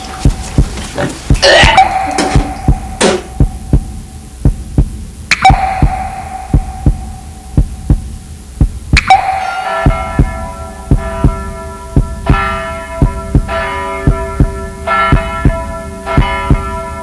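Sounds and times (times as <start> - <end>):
heartbeat thumping: 0.2 - 9.3, 9.9 - 16.8
sharp ringing hit: 5.3 - 8.0, 9.0 - 17.0.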